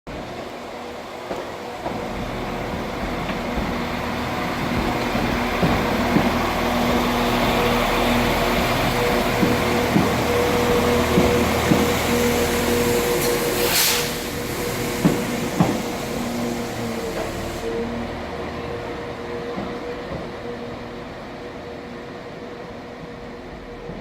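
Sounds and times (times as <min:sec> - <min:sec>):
train drivetrain humming: 0:00.1 - 0:24.0
wheels clicking on track: 0:01.2 - 0:17.6
brief hiss: 0:13.2 - 0:17.7.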